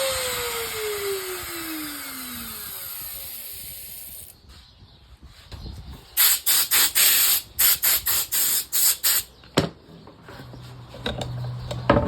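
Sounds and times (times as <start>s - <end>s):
compressed air blow gun hissing: 6.2s - 9.3s.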